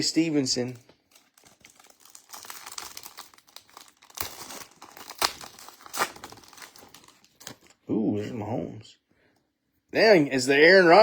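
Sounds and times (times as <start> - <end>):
foil wrapper tearing and crinkling: 0.2 - 7.8.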